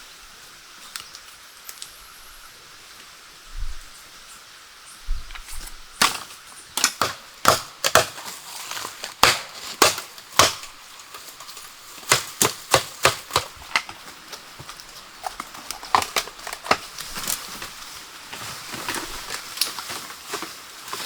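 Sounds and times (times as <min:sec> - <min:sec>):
sharp cracks and knocks: 0:05.3 - 0:21.0.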